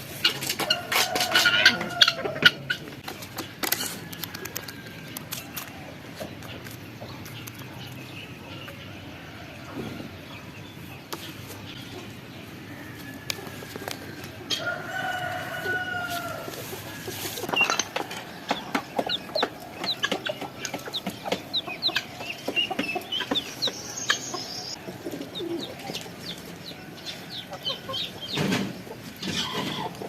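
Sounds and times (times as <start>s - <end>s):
hens clucking: 0.0s - 30.0s
rooster crowing: 0.7s - 2.5s, 14.5s - 17.2s
birds chirping: 1.6s - 30.0s.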